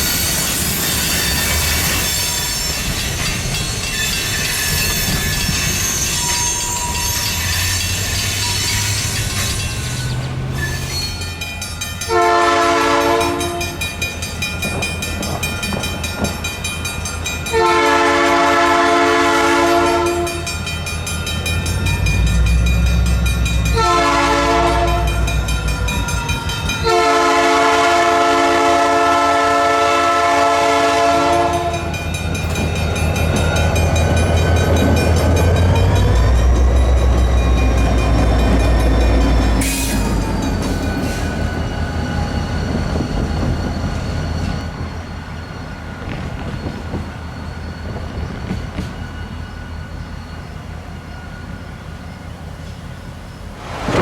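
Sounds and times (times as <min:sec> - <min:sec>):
diesel locomotive rumble: 0:00.0 - 0:54.0
locomotive air horn blasts: 0:12.1 - 0:13.8, 0:17.5 - 0:20.5, 0:23.7 - 0:25.4, 0:26.7 - 0:32.0.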